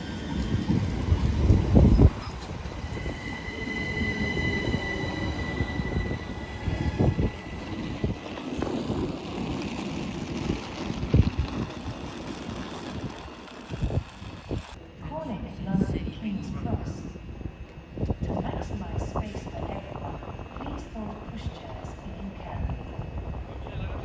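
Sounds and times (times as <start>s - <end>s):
low rumble: 0.0s - 14.8s
train wheels squealing on rails: 0.0s - 14.8s.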